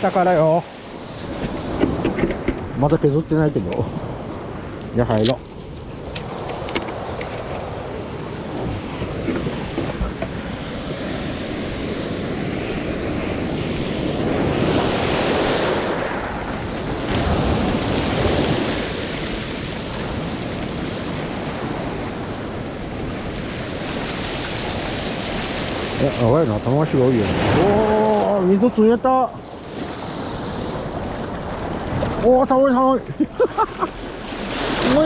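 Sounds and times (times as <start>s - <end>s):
ocean surf breaking: 0.0s - 35.0s
wind buffeting microphone: 0.9s - 28.5s.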